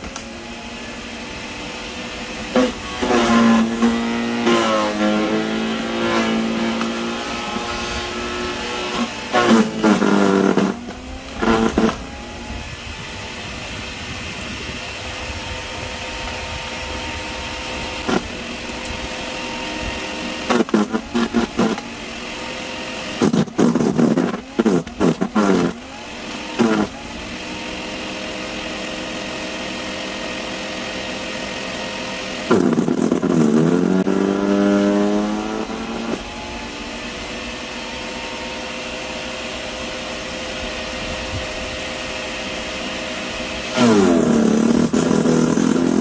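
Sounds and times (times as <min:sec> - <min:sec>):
wood chipper motor humming: 0:00.0 - 0:46.0.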